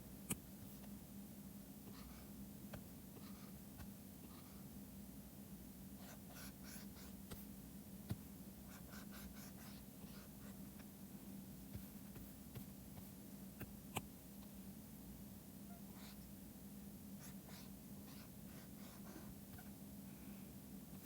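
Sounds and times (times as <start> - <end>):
low steady hum: 0.0 - 21.0
stylus scratching on tablet: 6.0 - 7.4, 8.7 - 10.6.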